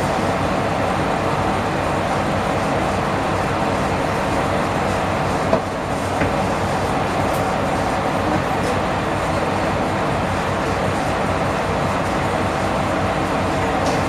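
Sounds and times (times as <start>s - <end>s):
diesel railcar running: 0.0s - 14.0s.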